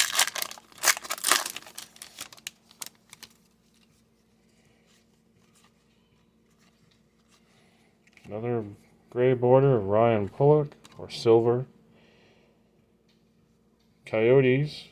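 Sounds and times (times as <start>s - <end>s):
plastic wrapper tearing and crinkling: 0.0s - 3.9s.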